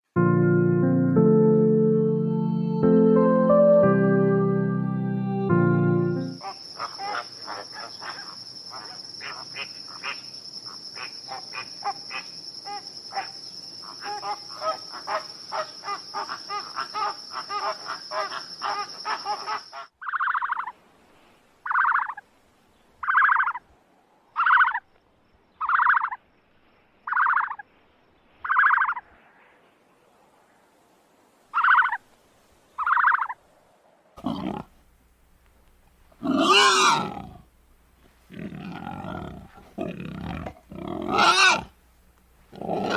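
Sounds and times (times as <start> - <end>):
insect trill: 5.4 - 20.7, 23.0 - 23.6, 24.3 - 29.0, 36.1 - 37.6, 38.3 - 41.8
short chirping calls: 6.1 - 20.7, 21.7 - 22.2, 23.0 - 23.6, 25.6 - 26.2, 27.0 - 27.6, 28.4 - 29.0, 32.8 - 33.4
rasping pulsed animal call: 36.2 - 37.4, 38.3 - 41.7.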